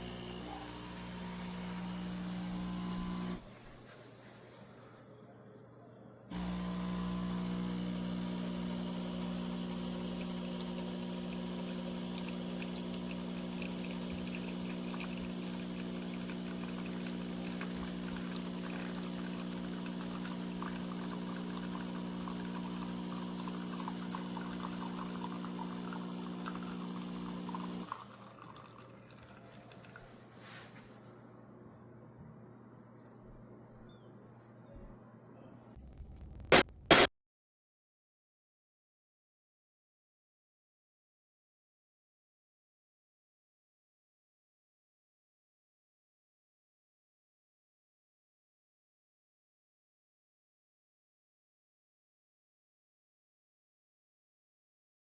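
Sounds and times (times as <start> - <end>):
espresso machine pump humming: 0.0 - 3.4, 6.3 - 30.0
liquid trickling and pouring: 10.1 - 30.5.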